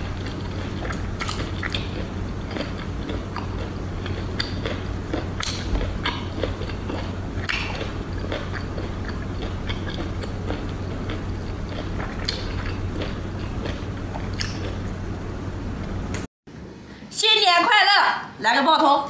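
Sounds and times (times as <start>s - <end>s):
low hum: 0.0s - 17.0s
wet chewing smacks: 0.2s - 14.8s.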